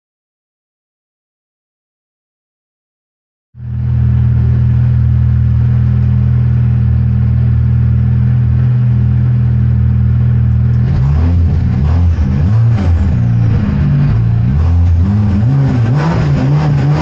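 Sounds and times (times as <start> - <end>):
car engine idling and revving: 3.6 - 17.0.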